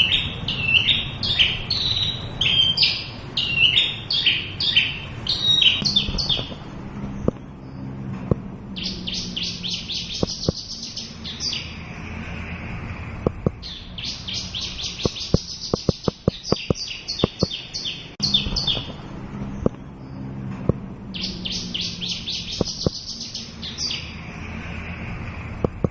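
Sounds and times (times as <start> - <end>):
lark singing high chirps: 0.0 - 6.6, 8.8 - 12.0, 13.4 - 20.2, 21.1 - 24.3
sharp clicks: 7.2 - 7.5, 10.1 - 10.8, 13.2 - 13.6, 15.0 - 17.6, 22.6 - 23.0, 25.6 - 25.9.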